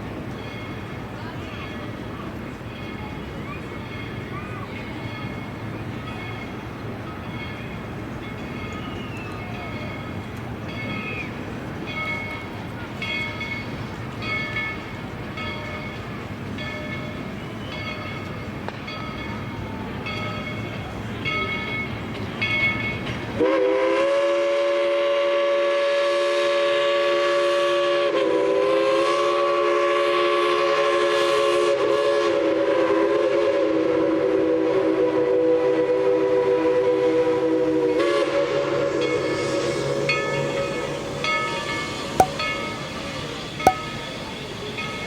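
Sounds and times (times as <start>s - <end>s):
train low rumble: 0.0s - 31.7s
locomotive bell ringing: 0.1s - 23.3s, 43.7s - 45.0s
steam whistle blast: 23.4s - 39.8s.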